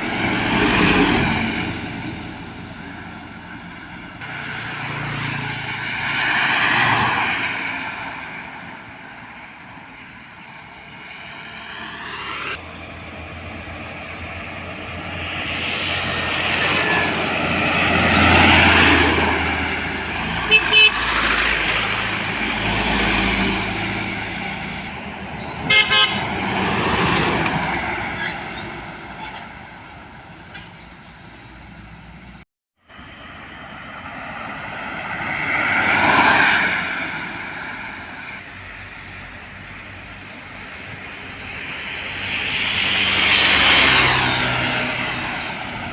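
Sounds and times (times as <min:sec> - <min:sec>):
heavy trucks and buses passing: 0:00.0 - 0:45.9
vehicle horns sounding: 0:20.3 - 0:21.2, 0:25.4 - 0:26.6
multi-tone horn blast: 0:20.4 - 0:21.2, 0:25.6 - 0:26.4.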